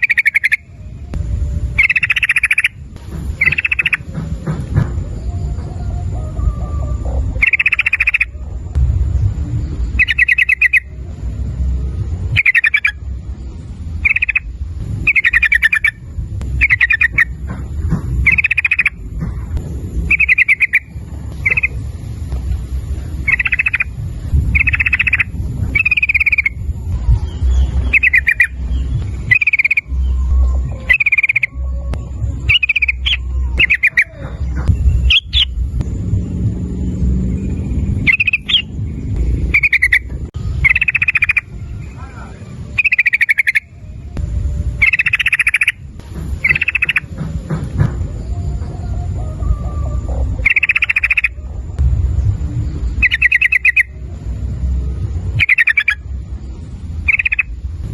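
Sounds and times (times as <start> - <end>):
bulbul singing bubbly phrases: 0.0 - 4.1, 5.2 - 8.7, 9.6 - 17.4, 18.2 - 19.0, 20.0 - 21.9, 22.9 - 35.6, 38.0 - 47.1, 50.4 - 51.4, 52.9 - 54.6, 55.4 - 56.2
steady low rumble: 0.0 - 57.9.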